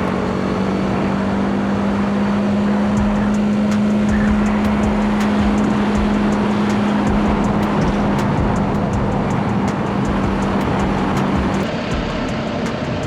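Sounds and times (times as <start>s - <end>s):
motorcycle engine: 0.0s - 13.0s
wind and road noise: 0.0s - 13.0s.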